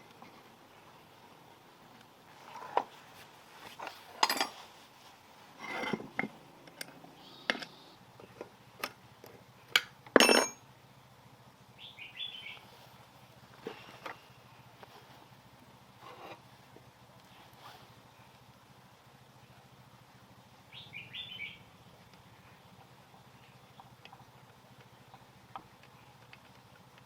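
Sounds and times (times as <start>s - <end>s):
metal tools clinking: 3.8s - 4.6s, 10.2s - 10.6s.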